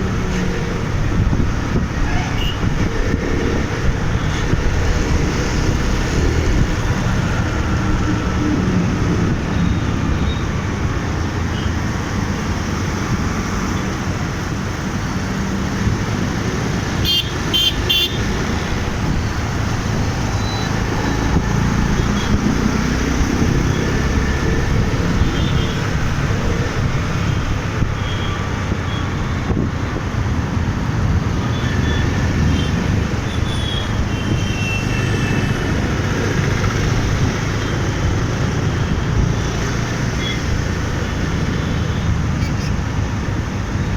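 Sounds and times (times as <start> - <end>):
wind and road noise rumble: 0.0 - 43.9
vehicle horns honking: 17.0 - 18.2.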